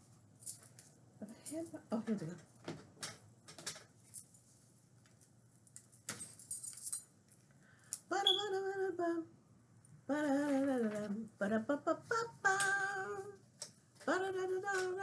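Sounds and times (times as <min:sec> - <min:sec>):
small clinking rustle: 0:00.4 - 0:00.8, 0:05.7 - 0:07.5.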